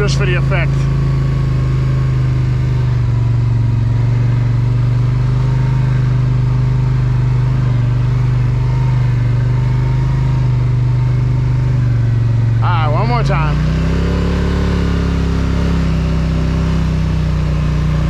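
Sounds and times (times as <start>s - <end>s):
quad engine droning: 0.0s - 18.0s.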